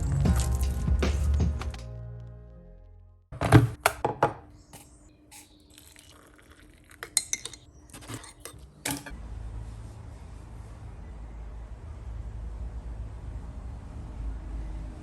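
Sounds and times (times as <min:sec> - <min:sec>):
metal tools clinking: 0:07.2 - 0:09.2.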